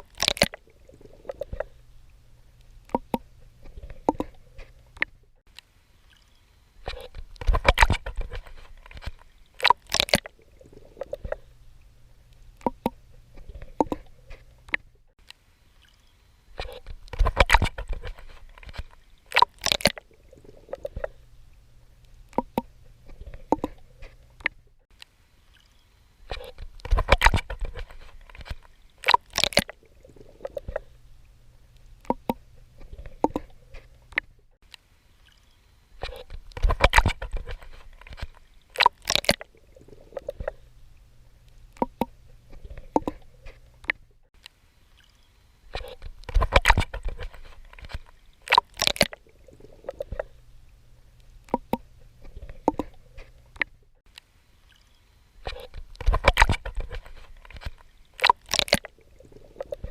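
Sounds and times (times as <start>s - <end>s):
faint low rumble: 0.0s - 9.5s, 20.0s - 25.4s, 29.8s - 38.6s, 39.4s - 48.3s, 49.2s - 58.0s.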